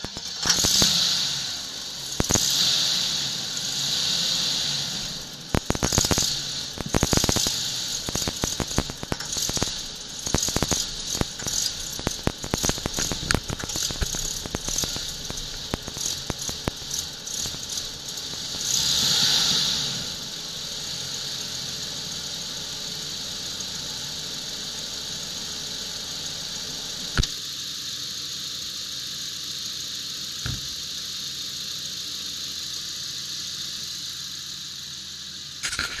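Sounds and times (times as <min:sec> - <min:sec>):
engine misfiring and idling: 0:00.0 - 0:36.0
sharp clicks: 0:35.6 - 0:36.0.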